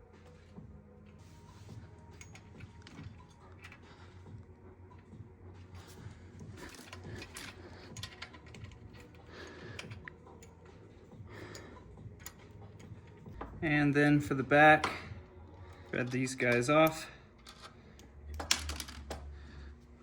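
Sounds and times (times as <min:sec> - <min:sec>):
small metal parts clicking: 0:02.1 - 0:03.9, 0:06.6 - 0:10.8, 0:11.4 - 0:13.4, 0:14.8 - 0:19.2.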